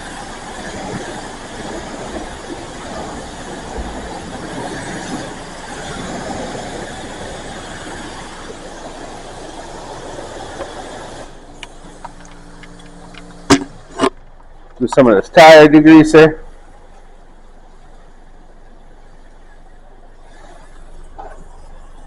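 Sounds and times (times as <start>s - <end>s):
pressure washer spraying water: 0.0s - 14.1s
low hum: 0.0s - 22.0s.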